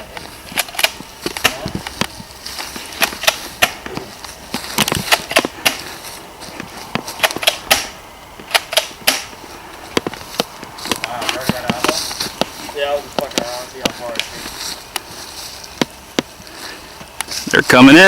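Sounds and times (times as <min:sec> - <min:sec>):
airsoft gun shots: 0:07.2 - 0:09.3.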